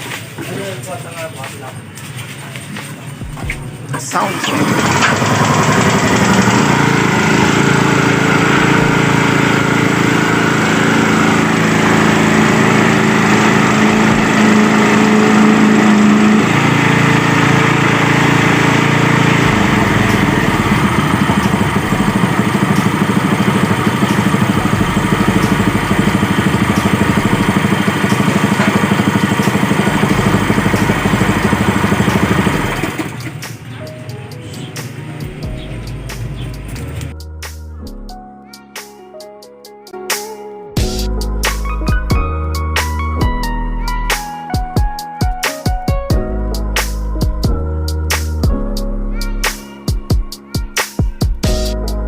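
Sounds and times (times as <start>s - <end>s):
water pump engine running: 4.0s - 33.4s.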